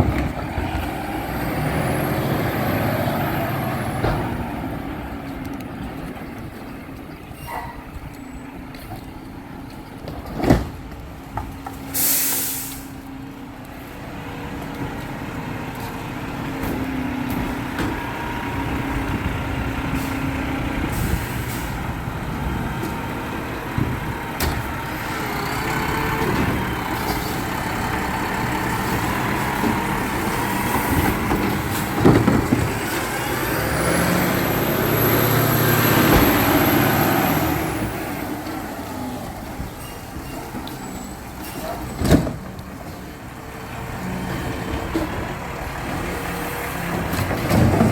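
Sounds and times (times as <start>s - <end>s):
diesel engine revving: 0.0s - 7.3s, 12.0s - 47.9s
air hiss: 11.9s - 13.0s.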